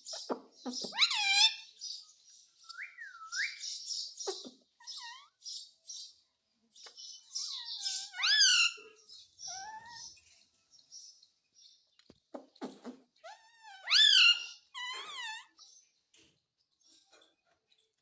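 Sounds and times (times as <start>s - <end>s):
parrot squawking and chattering: 0.0s - 1.8s, 3.4s - 5.6s, 7.3s - 10.2s, 12.3s - 15.6s.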